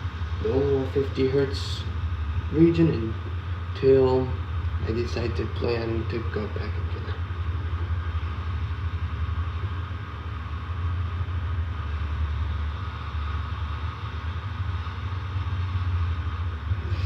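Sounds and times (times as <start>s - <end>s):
condenser fan whirring: 0.0s - 17.0s
low compressor hum: 0.0s - 17.0s.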